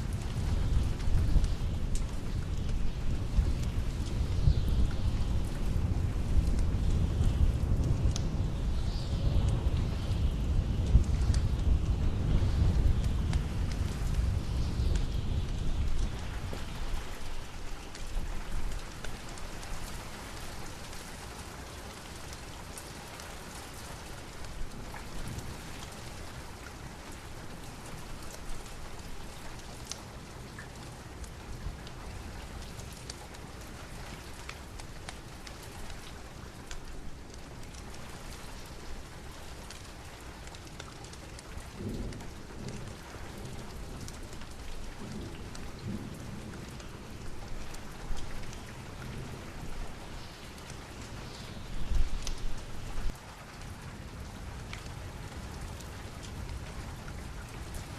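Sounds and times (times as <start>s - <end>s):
low rumble of thunder: 0.0s - 20.9s, 41.4s - 57.9s
steady rain: 0.0s - 57.9s.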